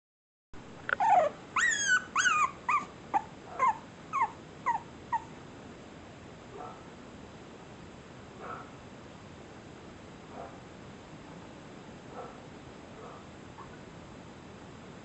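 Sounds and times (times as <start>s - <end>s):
dog whining and yelping: 0.9s - 5.4s, 13.6s - 13.8s.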